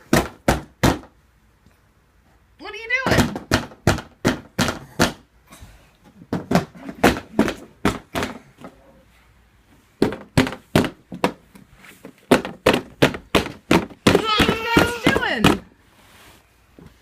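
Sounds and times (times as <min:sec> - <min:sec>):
child banging on a box: 0:00.0 - 0:01.1, 0:03.1 - 0:05.3, 0:06.3 - 0:08.6, 0:10.0 - 0:11.4, 0:12.2 - 0:15.7.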